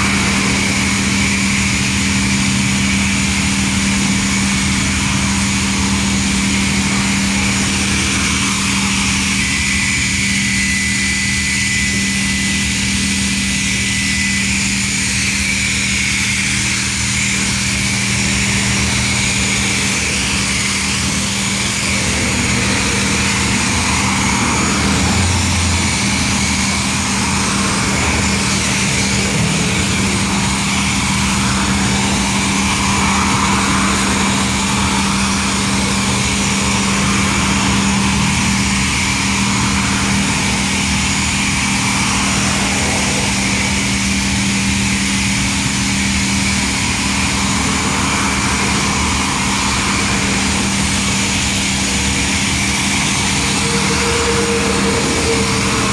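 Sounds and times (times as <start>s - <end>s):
motor humming: 0.0s - 55.9s
even hiss: 15.2s - 55.9s.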